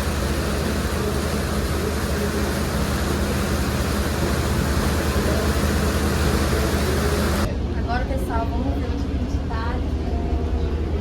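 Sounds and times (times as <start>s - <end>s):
water noise: 0.0s - 7.5s
ferry engine drone: 0.0s - 11.0s.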